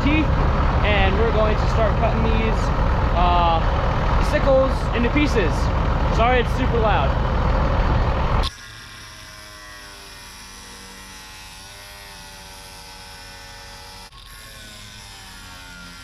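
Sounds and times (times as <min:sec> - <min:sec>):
machine hum: 0:00.0 - 0:13.6
power tool cutting steel: 0:08.1 - 0:16.0.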